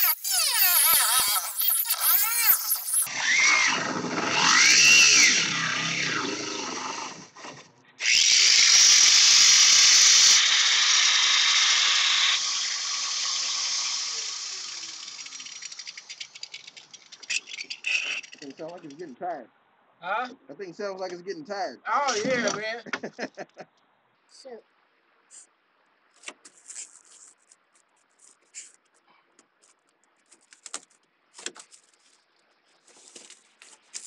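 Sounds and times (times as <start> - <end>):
power tool running under load: 0.0 - 15.9.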